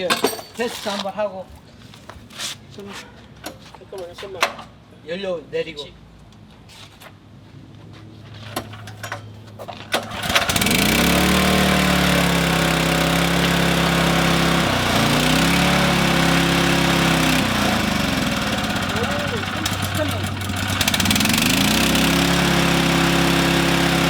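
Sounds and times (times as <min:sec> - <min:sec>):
engine running: 0:10.0 - 0:24.0.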